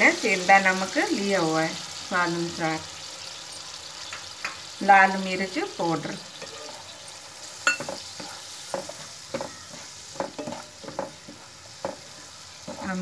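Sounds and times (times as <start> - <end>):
grapes sizzling in ghee: 0.0 - 13.0
spoon knocking and scraping pan: 4.0 - 4.7, 6.3 - 13.0.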